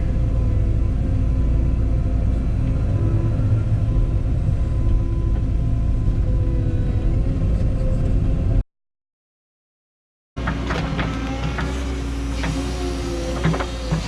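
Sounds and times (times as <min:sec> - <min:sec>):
excavator diesel engine running: 0:10.4 - 0:14.0.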